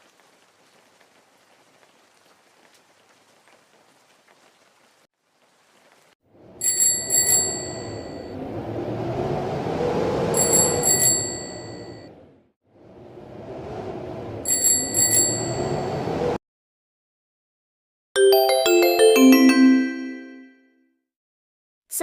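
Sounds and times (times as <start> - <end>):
rushing noise: 6.3 - 16.4
bright bell ringing: 18.2 - 20.6.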